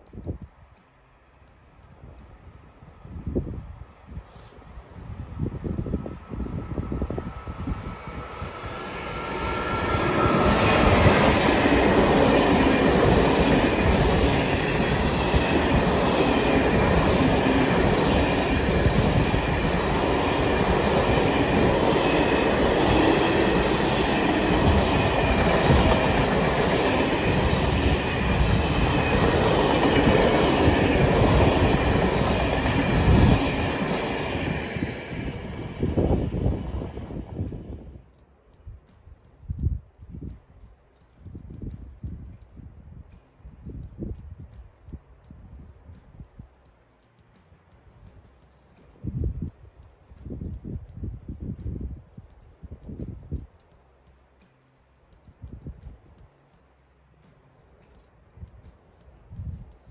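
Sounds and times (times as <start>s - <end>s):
freight train passing: 0.0s - 38.0s.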